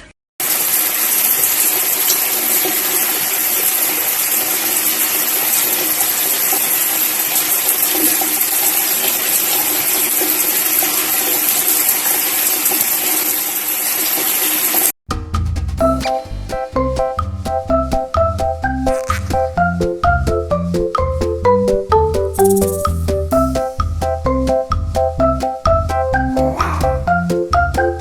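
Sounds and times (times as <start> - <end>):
running water rushing: 0.4 - 14.9.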